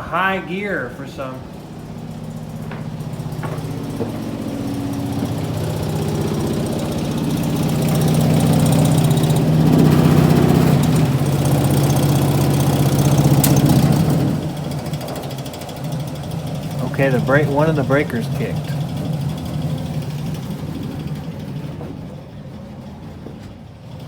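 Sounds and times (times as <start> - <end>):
furnace blower fan humming: 0.0 - 24.0.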